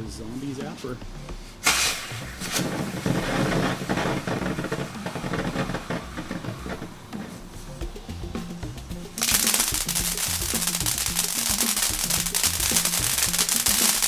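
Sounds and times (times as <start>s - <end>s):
firework whoosh: 1.6s - 7.4s, 9.2s - 14.0s
firework hissing and crackling: 1.6s - 7.8s, 9.0s - 14.0s.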